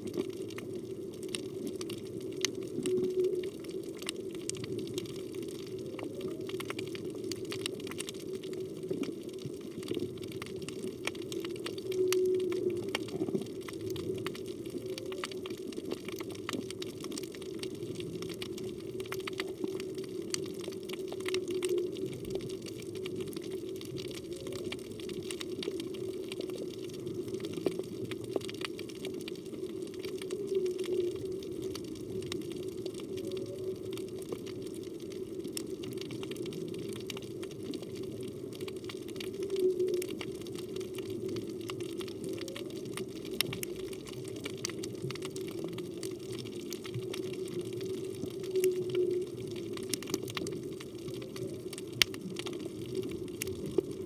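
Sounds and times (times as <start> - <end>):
crackle of small clicks: 0.0 - 54.0
underwater water noise: 0.0 - 54.0
whale moaning tones: 11.8 - 13.4.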